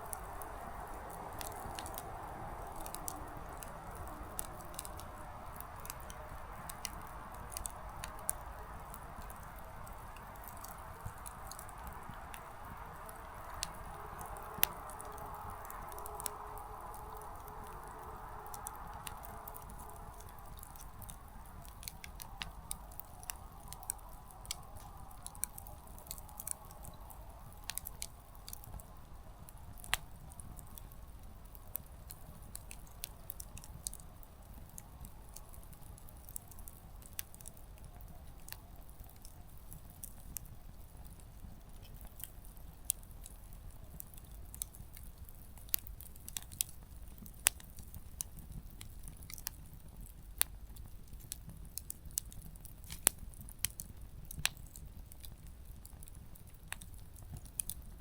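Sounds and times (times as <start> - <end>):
low steady rumble: 0.0 - 37.6
campfire crackling and popping: 0.0 - 58.0
soft hiss: 0.0 - 58.0.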